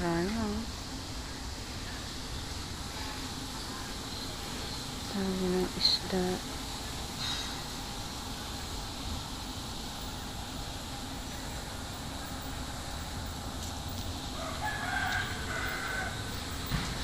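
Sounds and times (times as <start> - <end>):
steady low hum: 0.0 - 17.0
rooster crowing: 14.3 - 16.6.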